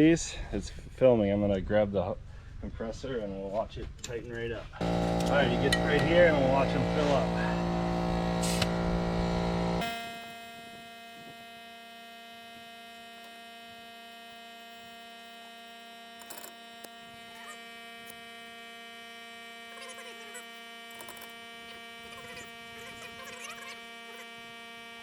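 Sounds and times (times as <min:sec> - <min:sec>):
electric hum: 0:04.8 - 0:20.2.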